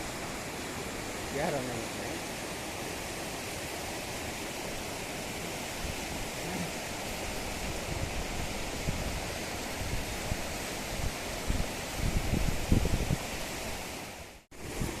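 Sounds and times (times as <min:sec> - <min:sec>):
flowing water rushing: 0:00.0 - 0:15.0
wind buffeting microphone: 0:07.2 - 0:13.5, 0:14.5 - 0:15.0.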